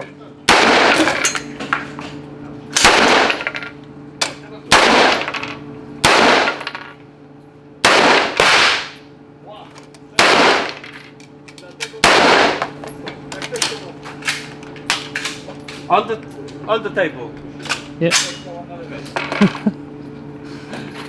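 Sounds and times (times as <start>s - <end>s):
gunshots with ringing tail: 0.5s - 1.2s, 2.8s - 3.5s, 4.7s - 5.3s, 6.0s - 6.7s, 7.8s - 9.0s, 10.2s - 10.8s, 12.0s - 12.7s.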